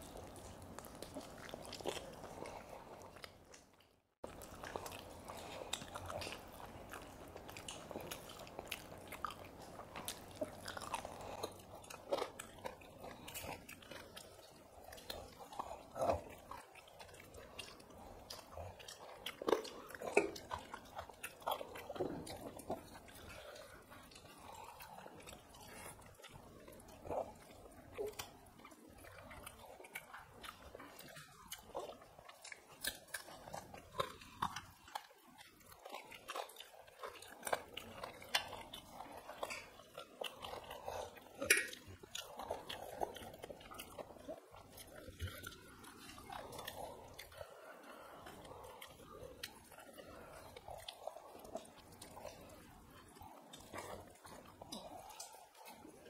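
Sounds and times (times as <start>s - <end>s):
people chewing food: 0.0s - 56.0s
wet mouth clicks: 41.2s - 42.7s.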